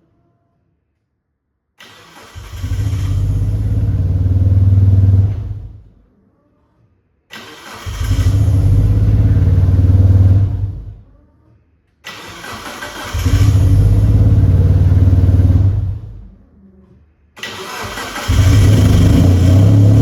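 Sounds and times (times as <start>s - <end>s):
car engine cranking and starting: 1.8s - 5.9s, 7.3s - 11.0s, 12.1s - 16.3s, 17.4s - 20.0s.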